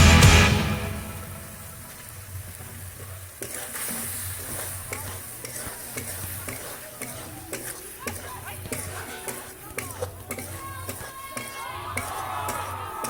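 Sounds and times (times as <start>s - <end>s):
mushrooms sizzling in a pan: 0.9s - 13.0s
utensil clicking against pan: 3.4s - 12.8s.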